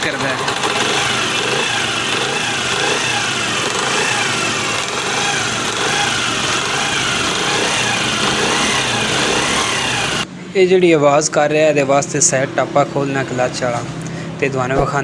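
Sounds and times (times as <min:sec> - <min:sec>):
mechanical clatter: 0:00.0 - 0:10.3
motorcycle engine running: 0:00.0 - 0:10.3
rising and falling whine: 0:00.5 - 0:10.3.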